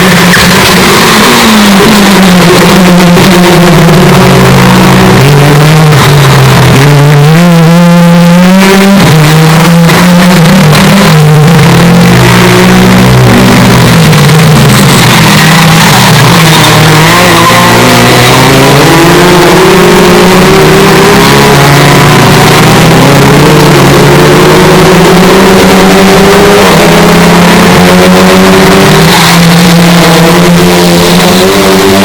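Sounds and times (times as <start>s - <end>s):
exhaust crackles: 0.0s - 25.6s
car engine accelerating: 0.0s - 32.0s.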